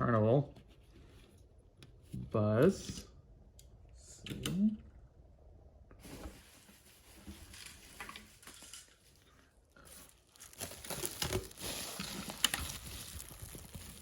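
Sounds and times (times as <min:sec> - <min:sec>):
packing material crinkling: 0:06.6 - 0:14.0.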